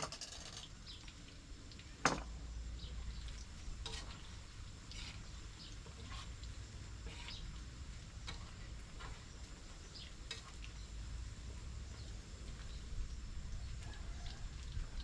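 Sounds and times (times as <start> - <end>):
food sizzling: 0.6 - 15.0
utensil scraping a pan: 3.8 - 10.6.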